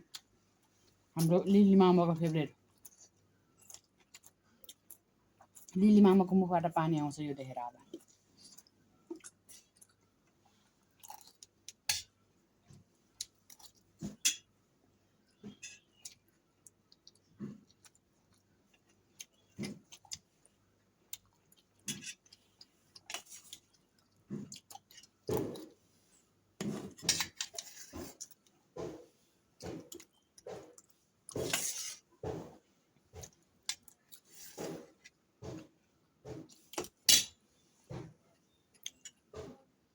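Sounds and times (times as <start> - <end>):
person chewing food: 2.6 - 5.8, 7.8 - 14.2, 15.3 - 25.9, 26.6 - 37.1.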